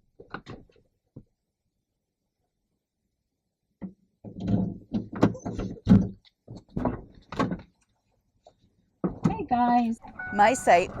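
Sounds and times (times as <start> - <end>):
thuds and knocks: 3.8 - 7.7.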